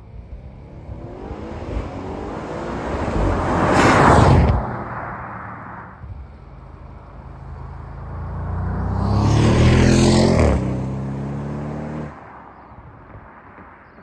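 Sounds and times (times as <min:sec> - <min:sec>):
car accelerating past: 0:00.5 - 0:05.9, 0:07.4 - 0:12.3.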